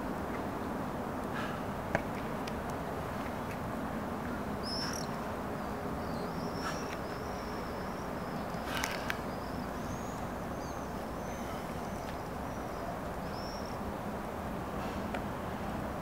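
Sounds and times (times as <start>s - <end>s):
outdoor background noise: 0.0s - 16.0s
small bird chirping and whistling: 12.7s - 13.8s.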